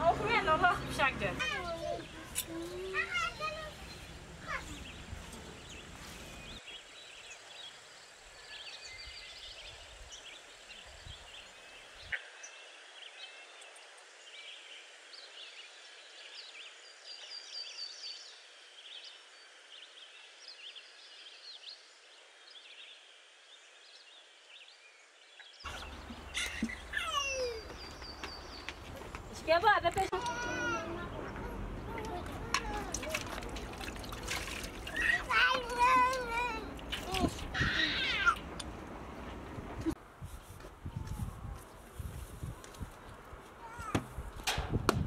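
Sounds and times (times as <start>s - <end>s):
birds chirping: 0.0s - 40.0s
faint outdoor hiss: 0.0s - 45.0s.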